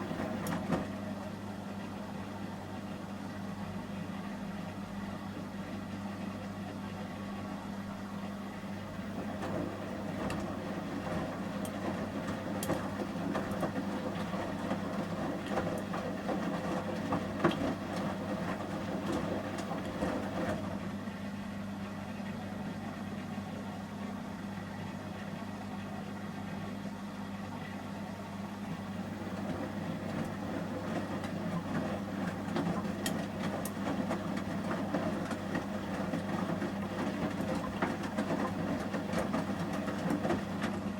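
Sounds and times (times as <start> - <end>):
laundry churning in water: 0.0 - 2.1, 8.6 - 21.0, 27.6 - 40.9
washing machine motor hum: 0.0 - 40.9.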